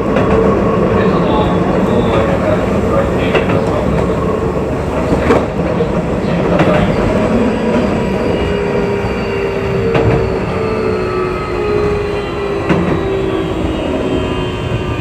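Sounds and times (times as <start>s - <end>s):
train wheels rumbling on rail: 0.0s - 15.0s
traction motor whine: 6.8s - 15.0s.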